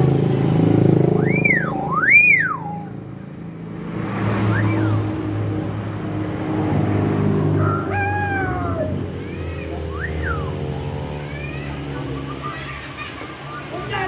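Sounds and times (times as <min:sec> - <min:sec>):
myna crow-like call: 0:07.6 - 0:09.1.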